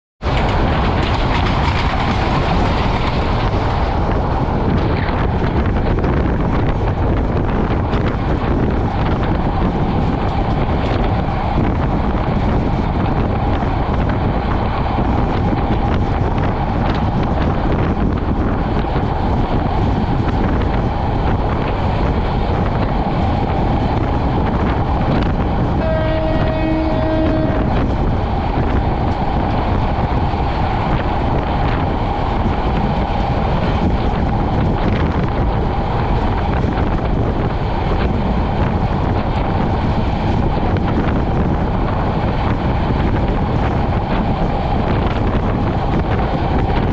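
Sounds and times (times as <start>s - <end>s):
train wheels rumbling on rails: 0.2s - 46.9s
train horn: 25.8s - 27.9s.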